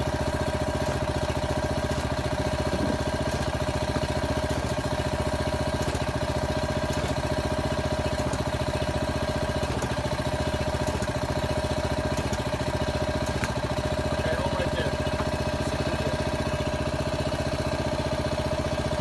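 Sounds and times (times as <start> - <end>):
small engine chugging: 0.0 - 19.0.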